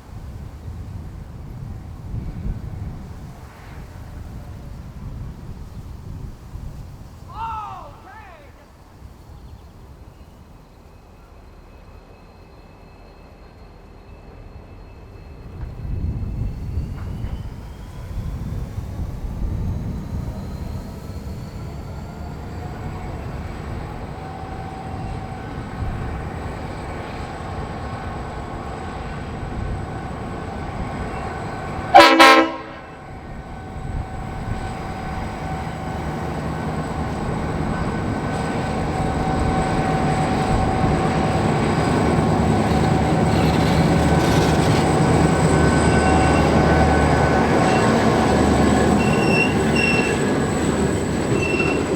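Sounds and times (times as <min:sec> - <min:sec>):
diesel locomotive engine rumble: 0:00.0 - 0:51.9
train wheels rumbling: 0:00.0 - 0:51.9
train horn blast: 0:31.8 - 0:33.2.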